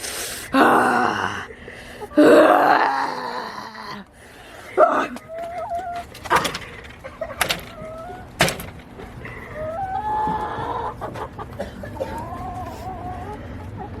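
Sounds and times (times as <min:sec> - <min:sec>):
hens clucking and calling: 0:04.4 - 0:14.0
sharp knocks: 0:06.1 - 0:07.8, 0:08.4 - 0:09.0.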